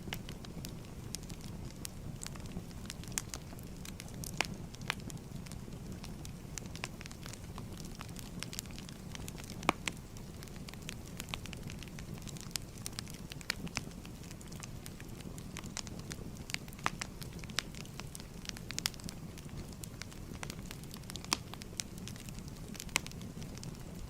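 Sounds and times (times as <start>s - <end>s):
firewood crackling: 0.0s - 24.0s.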